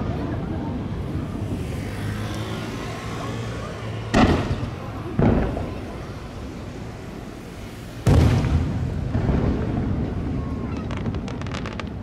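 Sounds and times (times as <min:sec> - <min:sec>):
firework booms with echo: 0:04.1 - 0:06.2, 0:08.0 - 0:12.0.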